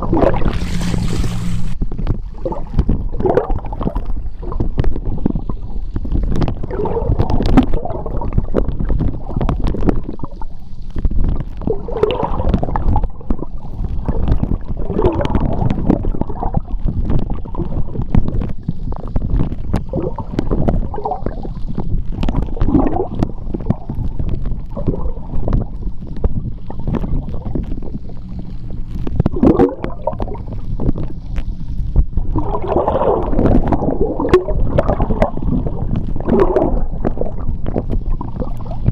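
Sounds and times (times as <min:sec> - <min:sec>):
gurgling bubbles: 0:00.0 - 0:38.9
underwater rumble of moving water: 0:00.0 - 0:38.9
underwater clicks: 0:17.0 - 0:38.9.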